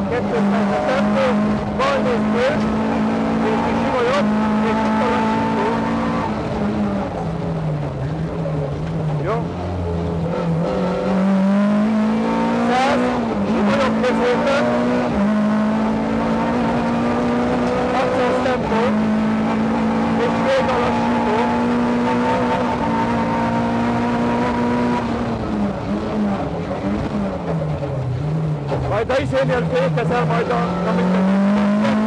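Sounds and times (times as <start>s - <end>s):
car engine at high revs: 0.0s - 32.0s.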